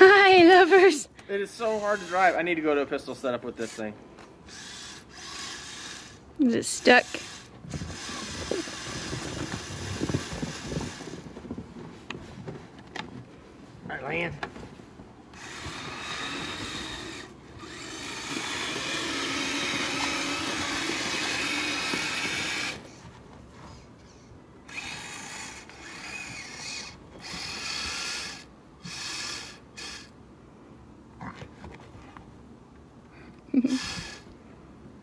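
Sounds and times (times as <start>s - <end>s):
toy snowcat motor whirring: 1.5s - 2.6s, 4.5s - 11.3s, 15.3s - 23.0s, 24.7s - 30.1s, 33.6s - 34.3s.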